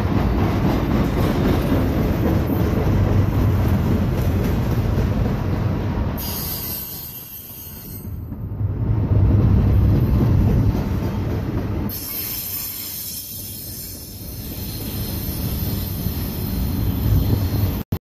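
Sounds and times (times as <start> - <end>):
train wheels rumbling on rail: 0.0 - 17.9
high wheel squeal and hiss: 6.2 - 8.2, 11.9 - 17.8.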